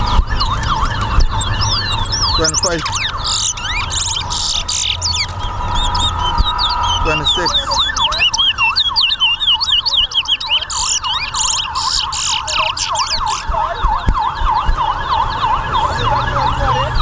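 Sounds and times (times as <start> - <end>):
finches singing whistled phrases: 0.0 - 13.5.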